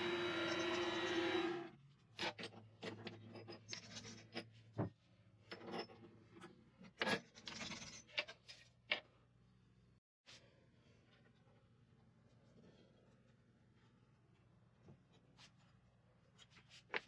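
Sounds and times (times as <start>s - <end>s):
lathe motor running: 0.0s - 1.7s.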